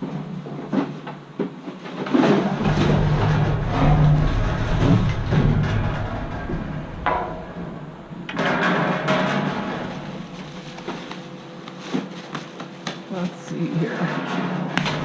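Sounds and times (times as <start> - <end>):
rustling trash: 0.0 - 15.0
clicks and clunks: 2.1 - 13.0, 14.1 - 15.0
faint hum: 2.2 - 15.0.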